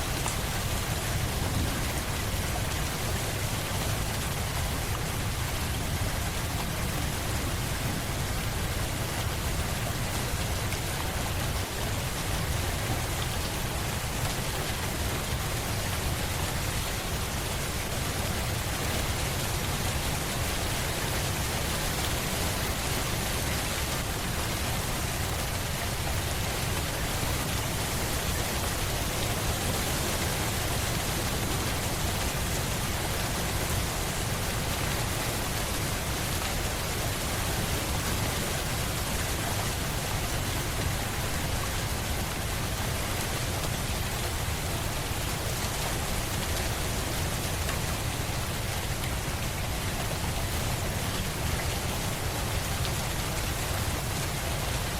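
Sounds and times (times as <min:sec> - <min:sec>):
steady rain hiss: 0:00.0 - 0:54.9.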